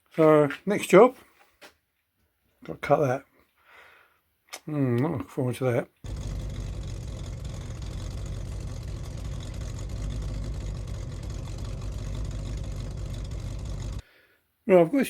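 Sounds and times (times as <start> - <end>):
motor running with low pulsing: 6.1 - 14.0.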